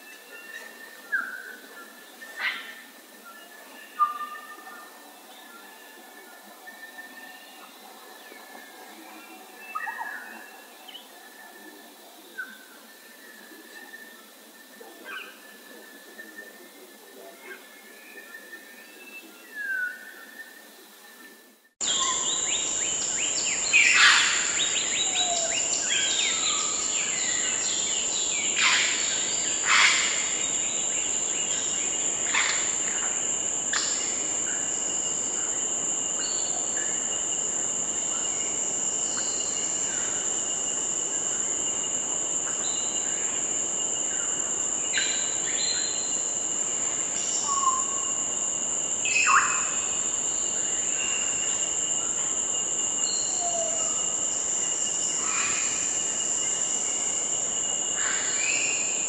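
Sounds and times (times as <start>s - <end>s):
high-pitched insect drone: 21.8s - 59.0s.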